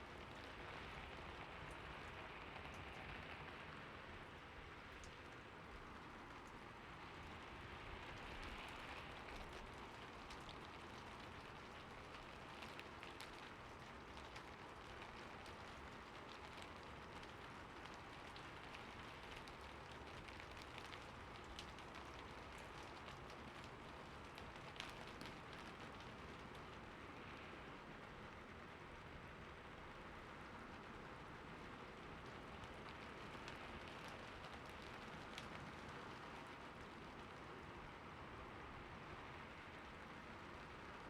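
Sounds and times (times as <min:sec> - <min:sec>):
light rain falling: 0:00.0 - 0:41.0
raindrops ticking: 0:04.4 - 0:27.5, 0:29.9 - 0:38.0.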